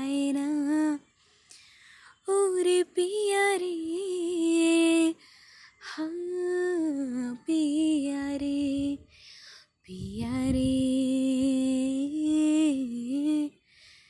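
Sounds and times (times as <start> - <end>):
girl singing wordless notes: 2.2 - 9.1, 9.9 - 13.5.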